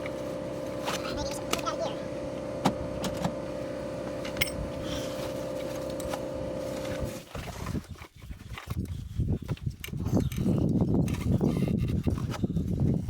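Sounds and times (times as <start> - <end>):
motor whine: 0.0 - 7.2.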